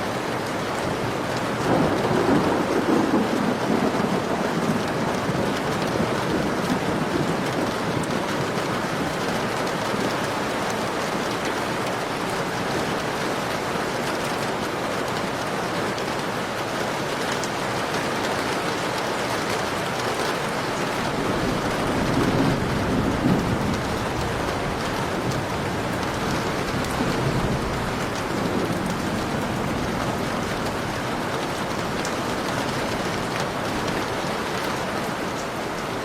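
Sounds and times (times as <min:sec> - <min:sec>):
heavy rain pouring: 0:00.0 - 0:36.0
thunder rumbling: 0:01.6 - 0:11.6, 0:20.7 - 0:34.8.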